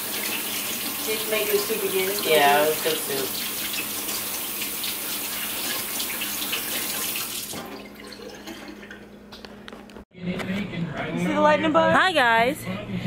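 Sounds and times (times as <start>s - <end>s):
tap running into sink: 2.8s - 9.4s.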